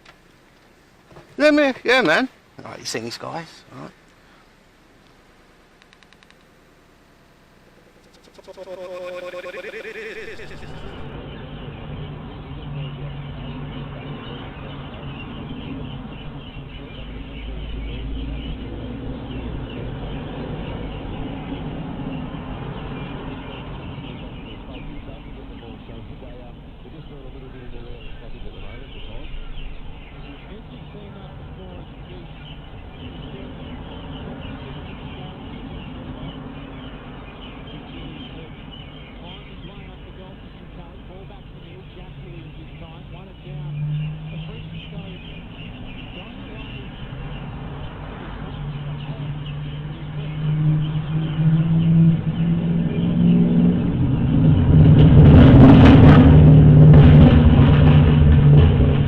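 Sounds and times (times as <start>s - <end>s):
birds chirping: 0.0s - 54.8s
vehicle engine running: 3.9s - 59.0s
car engine running: 4.4s - 22.1s.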